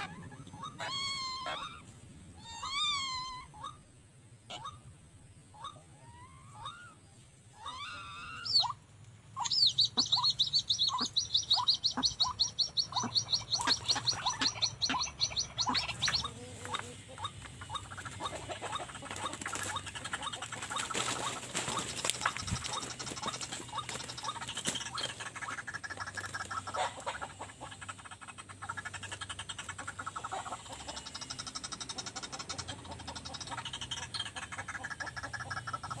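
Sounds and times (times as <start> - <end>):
waterhens calling: 0.0 - 3.8, 4.4 - 36.0
rustling: 19.0 - 24.1.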